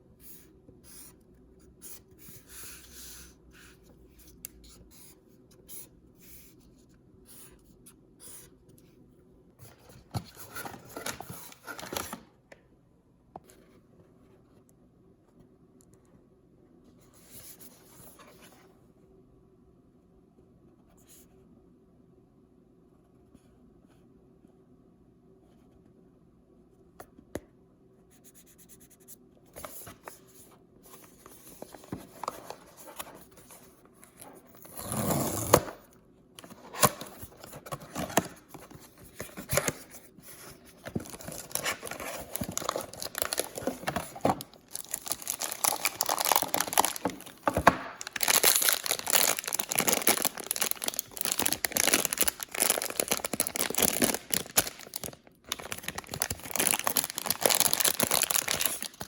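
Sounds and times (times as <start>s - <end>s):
paper crinkling: 36.4s - 59.0s.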